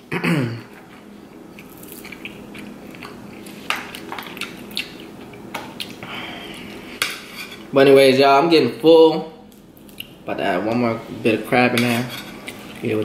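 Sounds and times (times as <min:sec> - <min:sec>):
chewing fried crab: 0:01.4 - 0:06.8, 0:12.4 - 0:13.0.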